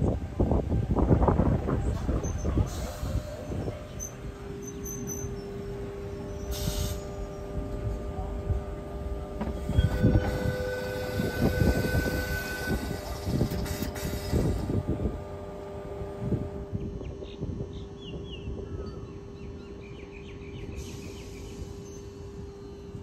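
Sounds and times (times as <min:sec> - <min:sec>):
train wheels rumbling on track: 0:00.0 - 0:17.9
electric train whine: 0:00.0 - 0:23.0
brake and wheel squeals: 0:02.0 - 0:07.6, 0:09.4 - 0:14.6.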